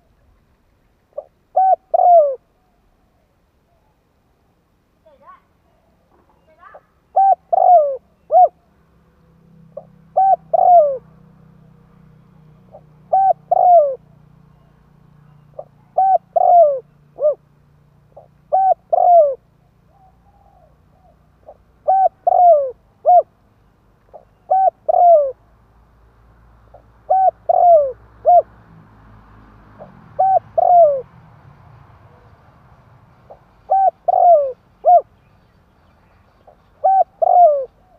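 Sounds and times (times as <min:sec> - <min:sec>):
dove cooing: 0:01.1 - 0:02.6, 0:06.6 - 0:08.7, 0:09.7 - 0:11.2, 0:12.6 - 0:17.5, 0:18.1 - 0:23.4, 0:24.1 - 0:25.4, 0:26.7 - 0:28.5, 0:29.8 - 0:31.1, 0:33.3 - 0:35.1, 0:36.4 - 0:37.9.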